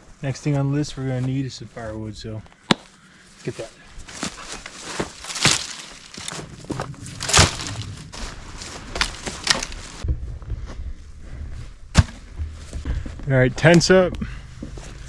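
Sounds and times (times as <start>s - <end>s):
dry sticks crunching and snapping: 4.0s - 10.0s.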